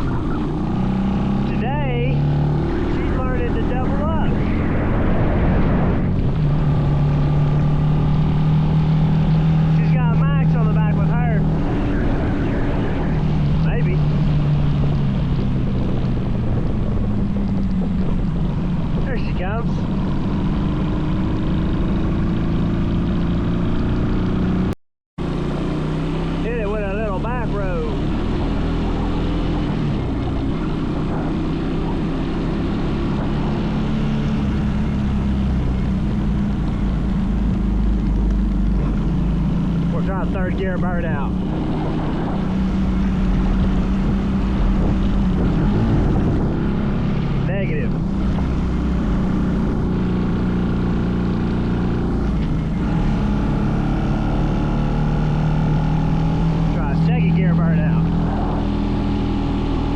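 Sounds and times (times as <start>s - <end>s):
rushing noise: 0.0s - 17.3s.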